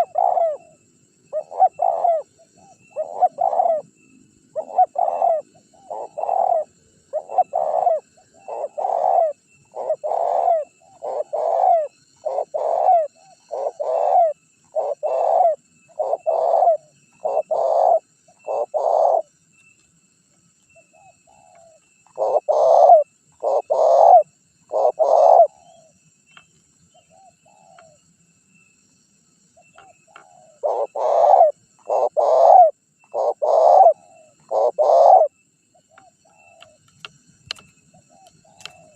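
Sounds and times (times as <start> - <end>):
dove cooing: 0.0 - 19.3, 20.8 - 26.0, 26.9 - 28.0, 29.7 - 36.8, 37.5 - 38.9.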